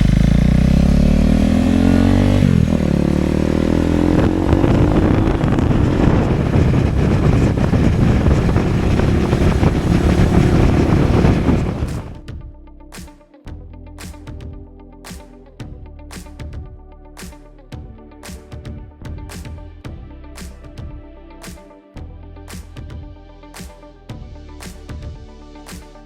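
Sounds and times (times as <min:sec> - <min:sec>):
motorcycle engine accelerating: 0:00.0 - 0:12.4
wind noise on microphone: 0:03.5 - 0:12.5.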